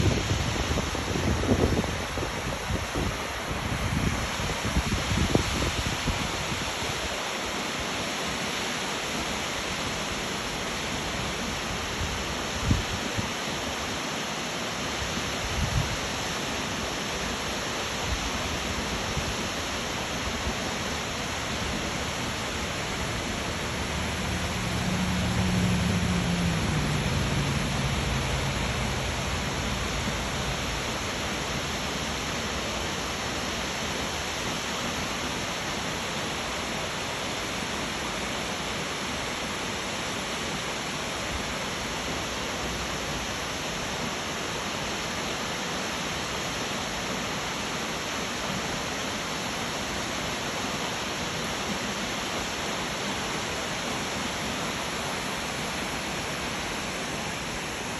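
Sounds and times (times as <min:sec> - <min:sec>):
waterfall roaring: 0:00.0 - 0:57.9
low hum: 0:23.0 - 0:31.7.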